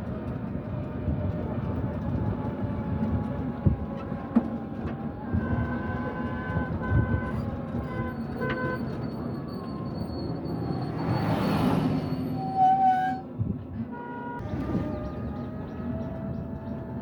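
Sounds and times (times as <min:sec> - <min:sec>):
passing vehicle rumble: 0:09.0 - 0:17.0.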